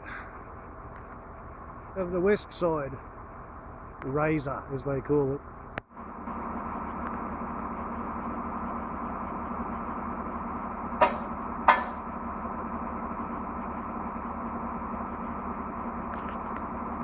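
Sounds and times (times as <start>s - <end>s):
truck engine running: 0.0s - 17.0s
sharp knocks: 11.0s - 12.1s.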